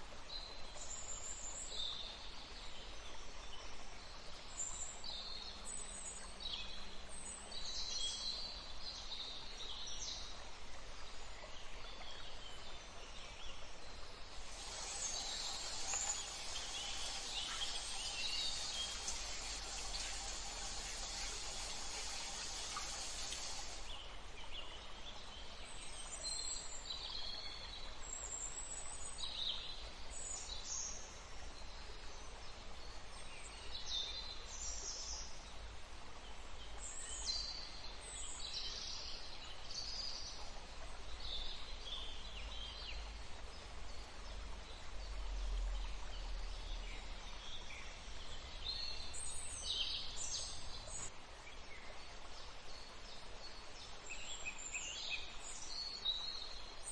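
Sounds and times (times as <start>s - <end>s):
steady background hiss: 0.0s - 56.9s
birds chirping: 14.3s - 24.0s.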